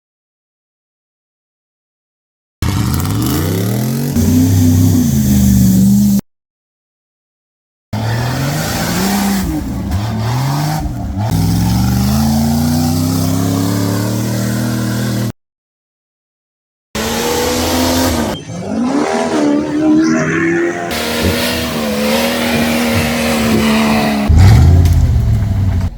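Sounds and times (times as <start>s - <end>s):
race vehicle engines revving: 2.6s - 6.2s, 8.0s - 15.3s, 17.0s - 25.9s.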